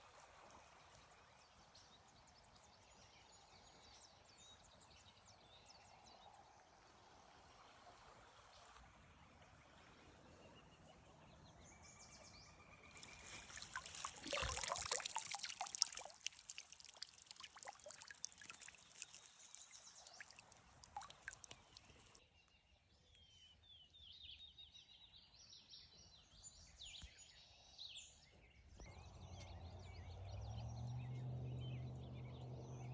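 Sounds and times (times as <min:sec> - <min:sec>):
creek ambience: 0:12.9 - 0:22.2
water pouring and splashing: 0:12.9 - 0:22.2.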